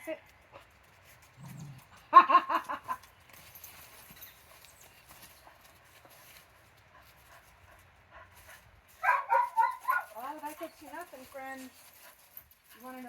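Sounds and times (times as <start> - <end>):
paws pattering: 0.2 - 13.0
dog yipping: 9.0 - 10.3.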